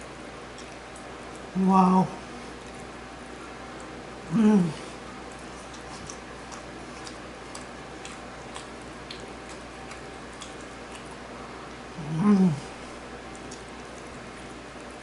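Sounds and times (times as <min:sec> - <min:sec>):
low room hum: 0:00.0 - 0:15.0
person humming mmm: 0:04.3 - 0:05.0, 0:12.0 - 0:12.8
eating mouth clicks: 0:05.6 - 0:11.2.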